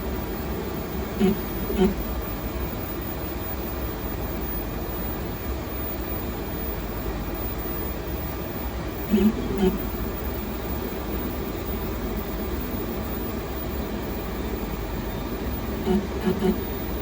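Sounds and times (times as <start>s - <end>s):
fan noise: 0.0s - 17.0s
printer mechanical hum: 0.0s - 17.0s
motor whining tones: 9.0s - 10.0s, 15.4s - 17.0s.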